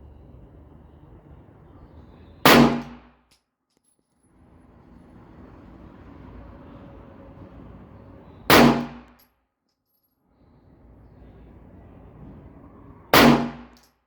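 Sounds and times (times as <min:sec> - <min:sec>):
pistol shot with ringing tail: 0:02.4 - 0:03.1, 0:08.5 - 0:09.1, 0:13.2 - 0:13.8.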